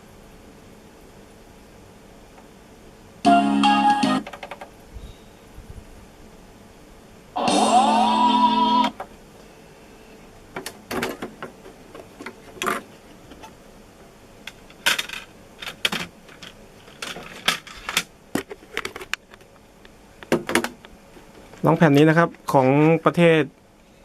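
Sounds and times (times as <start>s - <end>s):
plastic cd cases clattering: 14.5s - 19.3s.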